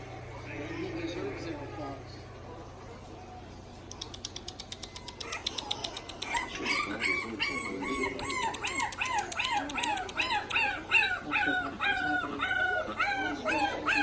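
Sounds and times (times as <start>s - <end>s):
light high clicks: 3.9s - 6.4s
puppies whining and yelping: 4.5s - 14.0s.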